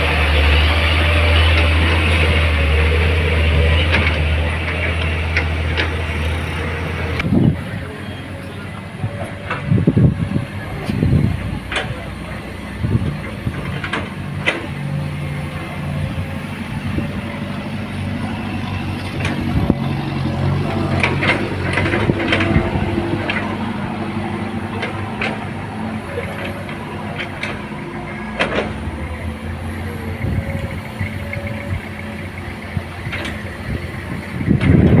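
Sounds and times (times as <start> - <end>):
truck engine idling: 0.0 - 35.0
sharp clicks and knocks: 11.6 - 12.0, 13.0 - 14.9, 19.0 - 19.8, 20.4 - 23.7, 24.7 - 29.2, 33.0 - 33.7.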